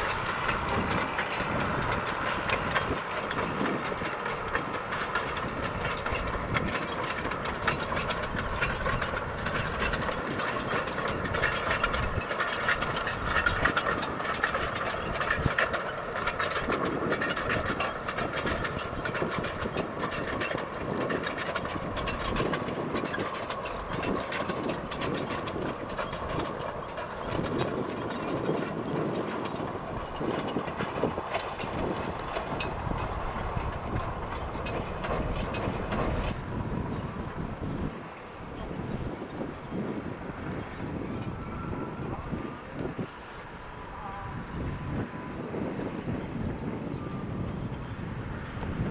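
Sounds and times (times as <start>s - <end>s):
train rumble: 0.0s - 48.9s
train wheels clattering on track: 0.0s - 48.9s.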